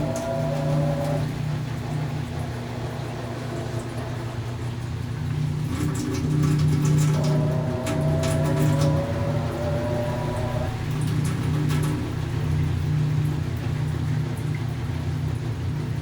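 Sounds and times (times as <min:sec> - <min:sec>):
high motor whine: 0:00.0 - 0:05.6, 0:06.4 - 0:11.1
washing machine motor hum: 0:00.0 - 0:16.0.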